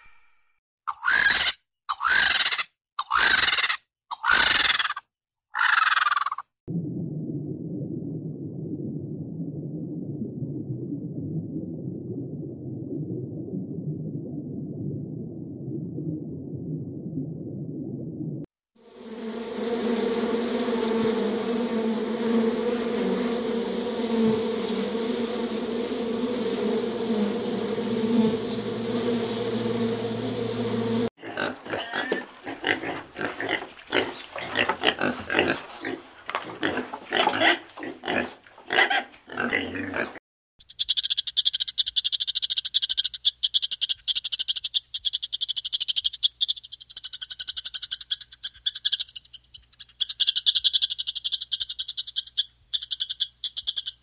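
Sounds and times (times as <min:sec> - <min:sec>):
bees buzzing: 0:18.8 - 0:37.4
pig grunting: 0:31.2 - 0:40.2.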